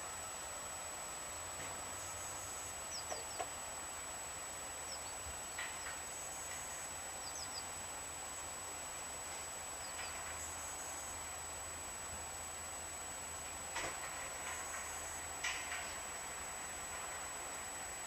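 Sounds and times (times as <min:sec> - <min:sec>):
steady hiss: 0:00.0 - 0:18.0
small birds chirping: 0:02.0 - 0:03.6, 0:04.8 - 0:07.8, 0:09.7 - 0:11.2.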